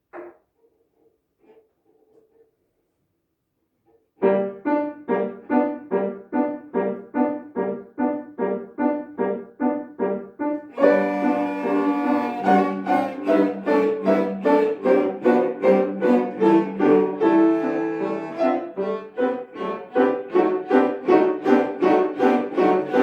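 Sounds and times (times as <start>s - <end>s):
piano accompaniment: 4.2s - 23.0s
cellos playing: 10.7s - 23.0s.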